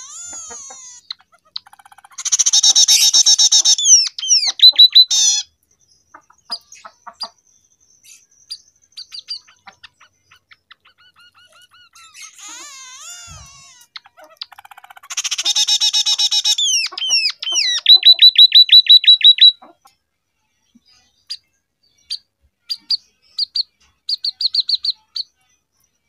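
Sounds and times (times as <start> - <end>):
bird singing with trills and whistles: 0.0 - 19.6, 20.8 - 26.0.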